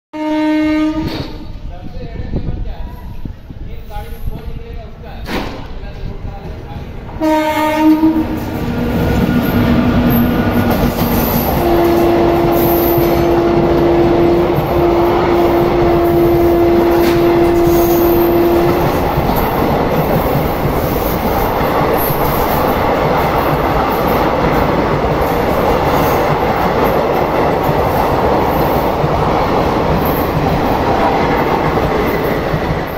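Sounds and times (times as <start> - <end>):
locomotive horn blasts: 0.2 - 1.4, 7.2 - 8.4, 11.6 - 18.8
train wheel and rail clatter: 1.0 - 32.9.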